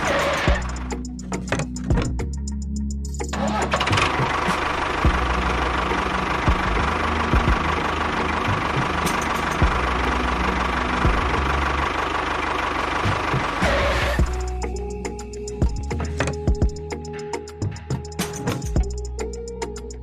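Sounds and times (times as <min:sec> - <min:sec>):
small motor whining and rattling: 0:00.0 - 0:02.0.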